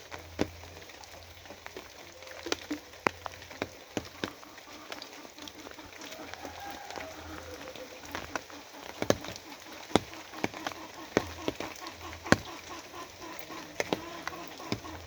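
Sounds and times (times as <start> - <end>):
rain falling: 0.0 - 15.0
raindrops tapping hard surface: 0.0 - 15.0.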